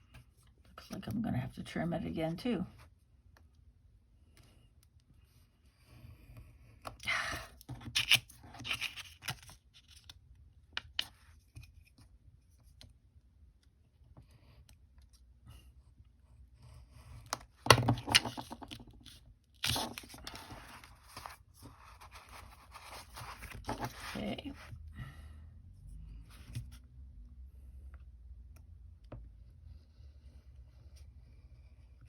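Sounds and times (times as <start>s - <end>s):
paper rustling and scraping: 18.0s - 24.7s.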